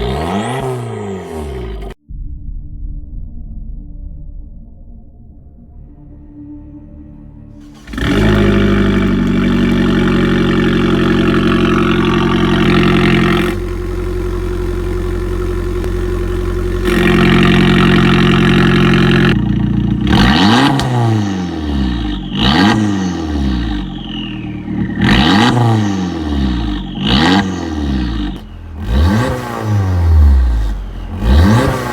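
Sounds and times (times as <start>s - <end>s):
car engine revving: 0.0s - 2.0s, 7.6s - 31.9s.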